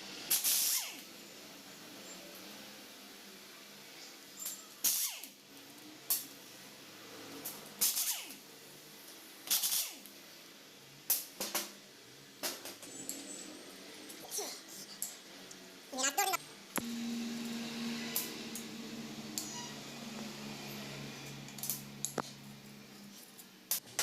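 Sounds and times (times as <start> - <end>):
metallic clanks of tools and engine parts: 12.4 - 14.2, 18.2 - 24.0.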